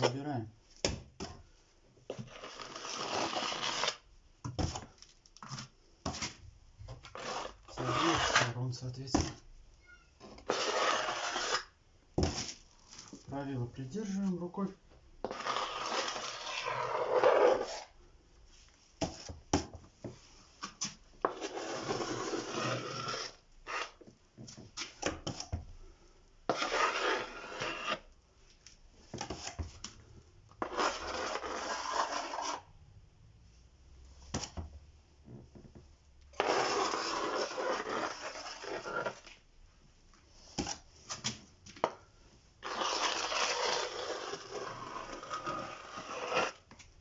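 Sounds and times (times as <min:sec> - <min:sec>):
spatula scraping plaster: 0:02.1 - 0:09.4, 0:10.2 - 0:13.3, 0:15.2 - 0:18.0, 0:19.0 - 0:24.2, 0:26.4 - 0:28.2, 0:30.5 - 0:32.7, 0:36.4 - 0:39.4, 0:42.6 - 0:46.8.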